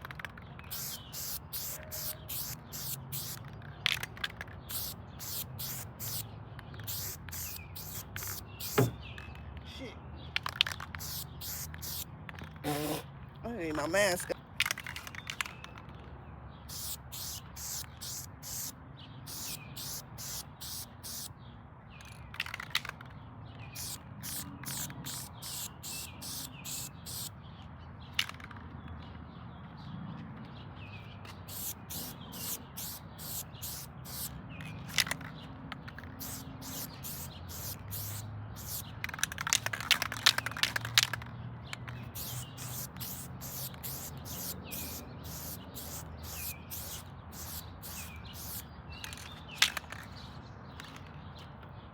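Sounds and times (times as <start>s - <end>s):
spray paint can hissing: 0.0s - 9.2s, 10.4s - 13.1s, 16.7s - 21.3s, 23.8s - 27.3s, 31.3s - 35.3s, 35.9s - 50.1s
high chirping sounds: 0.0s - 9.6s, 10.3s - 13.1s, 16.6s - 21.3s, 23.7s - 27.4s, 31.2s - 35.3s, 36.0s - 50.9s.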